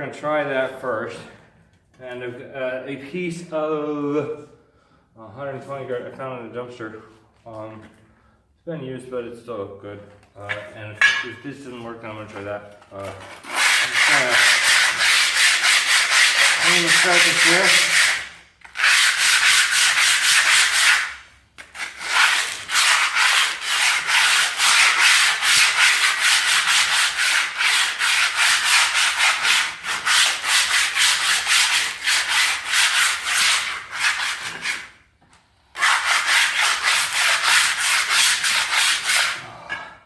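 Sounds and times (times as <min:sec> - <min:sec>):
sanding disc scraping metal: 0:13.4 - 0:21.2.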